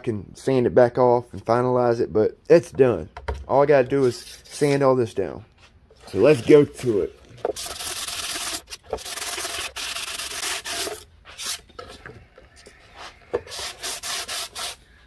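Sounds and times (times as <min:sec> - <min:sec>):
sandpaper rasping on wood: 0:07.6 - 0:11.7, 0:13.0 - 0:14.8.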